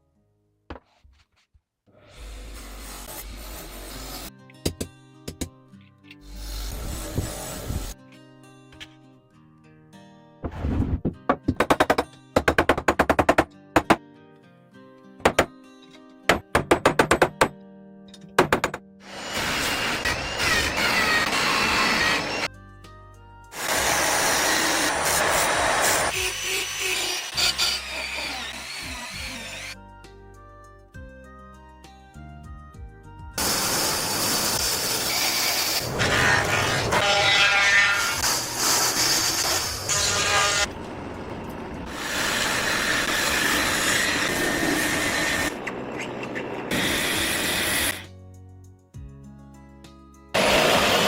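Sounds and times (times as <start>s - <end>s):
soft background music: 22.5s - 23.6s, 29.7s - 33.4s, 48.0s - 50.4s
tool scraping workpiece: 35.7s - 40.7s.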